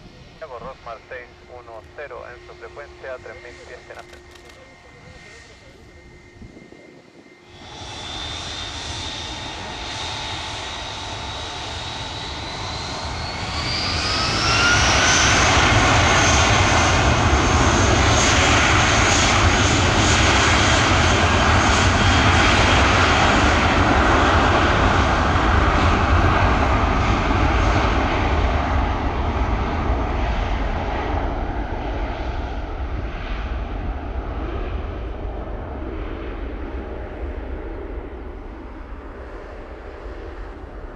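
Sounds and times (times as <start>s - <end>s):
jet engines spooling up: 0.1s - 28.6s.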